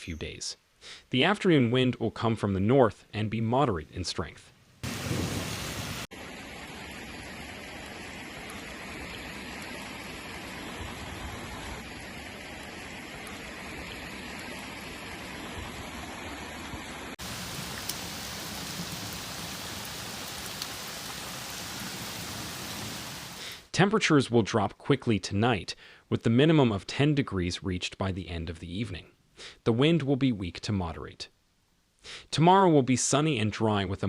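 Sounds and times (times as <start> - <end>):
heavy rain hissing: 4.8 - 12.2, 17.2 - 23.7.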